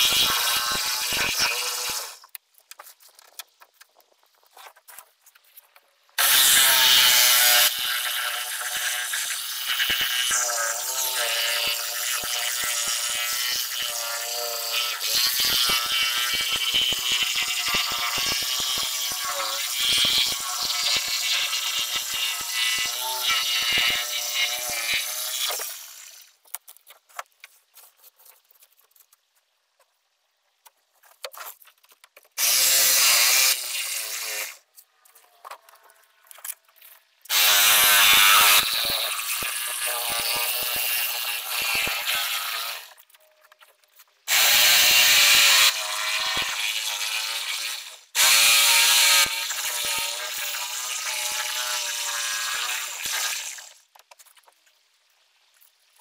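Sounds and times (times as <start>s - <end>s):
small scrapes and clicks: 0.8s - 6.2s, 25.4s - 32.4s, 34.6s - 37.3s, 42.9s - 44.2s, 53.1s - 56.0s.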